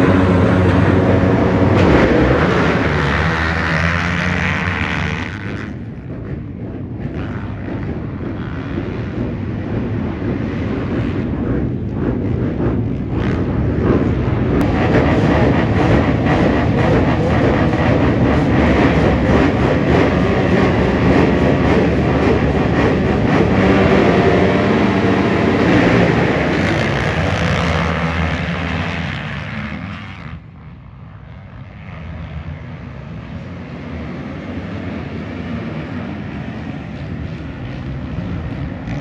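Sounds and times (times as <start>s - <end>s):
off-road racing engines: 0.0s - 39.0s.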